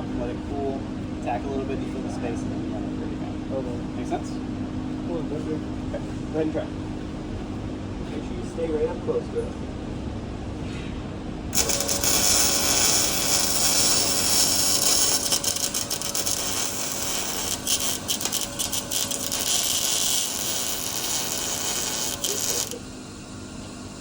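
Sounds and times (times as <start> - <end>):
arc welder crackling hiss: 11.5 - 24.0.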